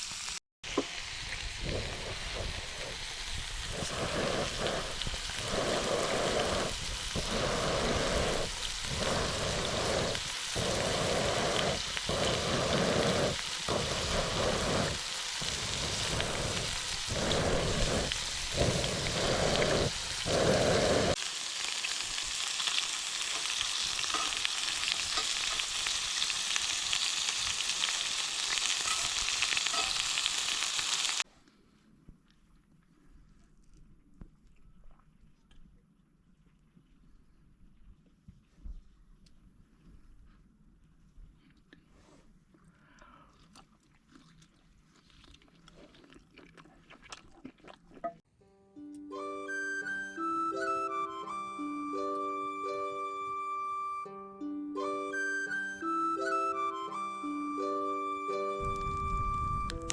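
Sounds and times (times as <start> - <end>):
meat sizzling over campfire: 0.0 - 31.2, 58.6 - 59.9.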